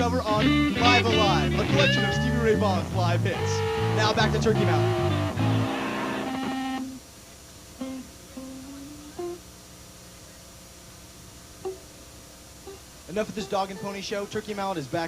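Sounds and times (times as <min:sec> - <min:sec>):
guitar music: 0:00.0 - 0:07.0, 0:07.8 - 0:09.5, 0:11.6 - 0:12.0, 0:12.6 - 0:14.7
single guitar notes picked: 0:00.0 - 0:07.0, 0:07.8 - 0:09.5, 0:11.6 - 0:12.0, 0:12.6 - 0:14.3.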